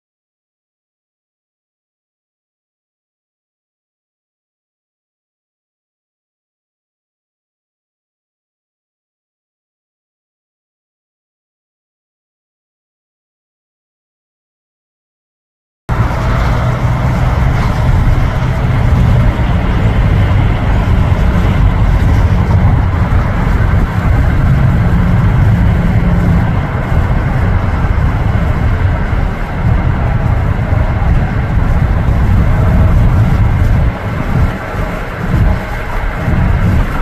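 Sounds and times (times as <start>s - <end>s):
jet engines rumbling: 15.9s - 37.0s.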